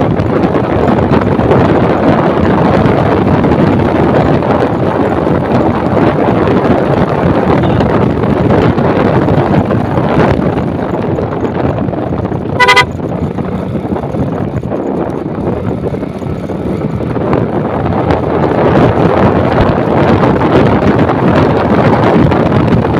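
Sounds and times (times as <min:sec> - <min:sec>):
wind rushing over microphone: 0:00.0 - 0:22.9
vehicle horn toot: 0:07.6 - 0:07.9, 0:12.6 - 0:12.9.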